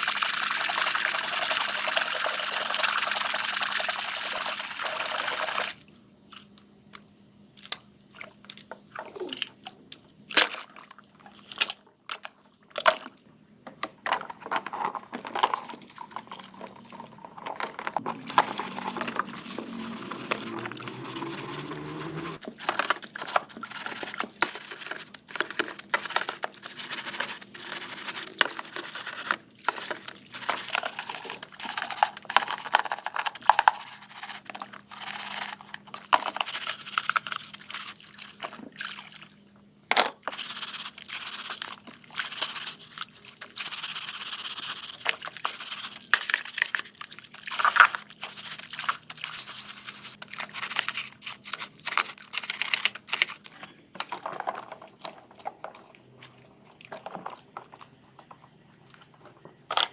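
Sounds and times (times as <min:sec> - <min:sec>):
scrubbing and scraping metal: 0:17.9 - 0:22.4.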